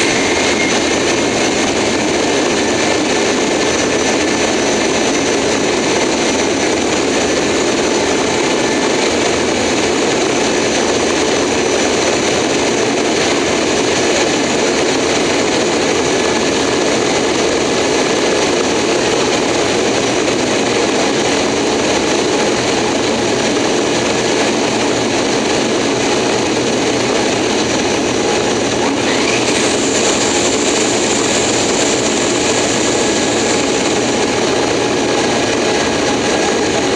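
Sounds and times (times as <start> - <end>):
faint rising whine: 0.0 - 4.8
jet engine and rushing air roar: 0.0 - 36.9.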